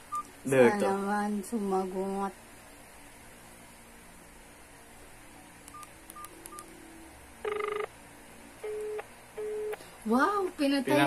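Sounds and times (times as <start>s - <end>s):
mobile phone beeping: 5.7s - 6.7s, 7.4s - 7.9s, 8.6s - 9.8s
phone busy tone: 7.4s - 7.9s, 8.6s - 9.8s.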